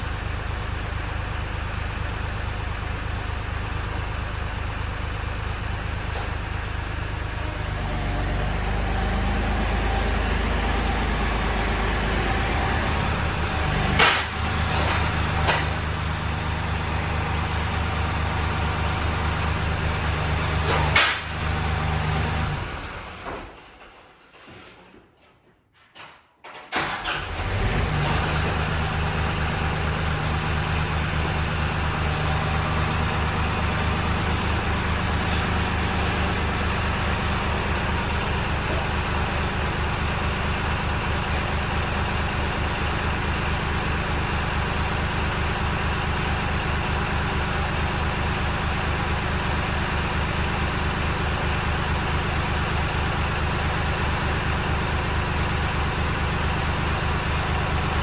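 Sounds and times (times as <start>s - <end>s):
loader engine humming: 0.0s - 23.6s, 26.8s - 58.0s.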